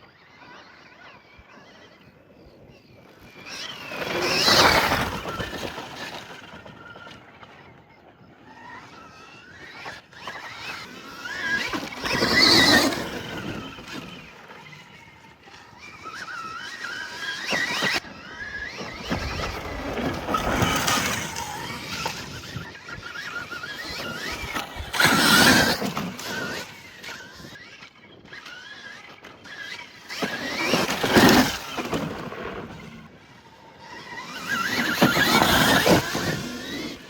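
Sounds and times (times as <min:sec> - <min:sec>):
dirt bikes passing loudly: 0:00.1 - 0:37.0
dirt bike motors revving: 0:08.2 - 0:37.0.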